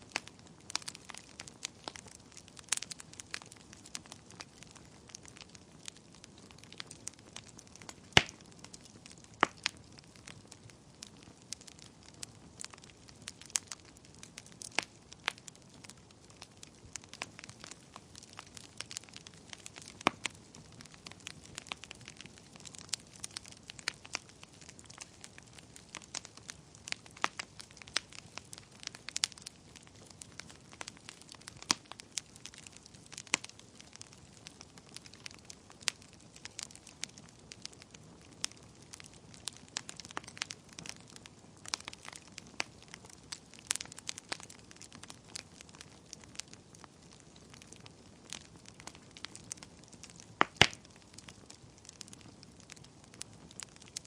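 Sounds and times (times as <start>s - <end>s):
soft fire hiss: 0.0s - 54.0s
wood fire crackling and popping: 0.0s - 54.0s.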